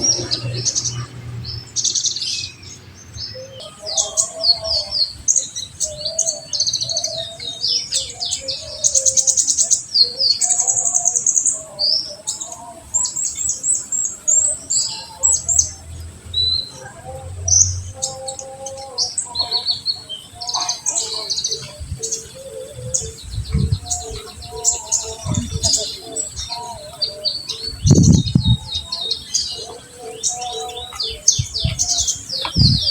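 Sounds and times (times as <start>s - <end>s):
bird chirps and trills: 0.0s - 32.9s
lower short bird notes: 27.7s - 29.0s.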